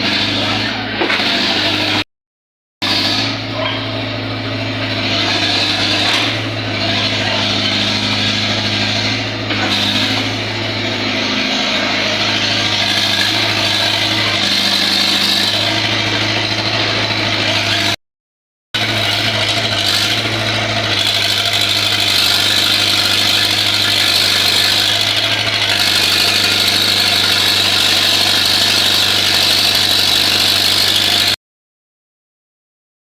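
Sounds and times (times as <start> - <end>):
small power tool running: 2.8 - 18.0, 18.8 - 31.4.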